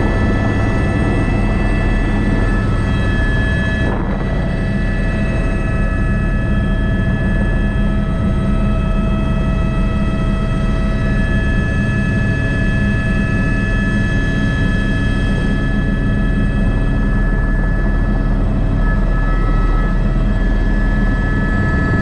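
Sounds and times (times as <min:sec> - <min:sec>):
rotor rumble: 0:00.0 - 0:08.8, 0:18.1 - 0:22.0
helicopter engine whine: 0:00.0 - 0:22.0.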